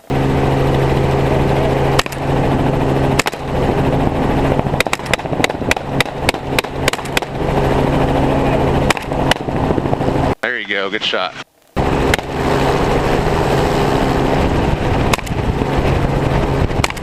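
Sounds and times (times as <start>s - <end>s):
helicopter engine and rotor drone: 0.0s - 17.0s
rifle shots: 3.2s - 3.4s, 4.8s - 7.4s, 8.9s - 9.5s.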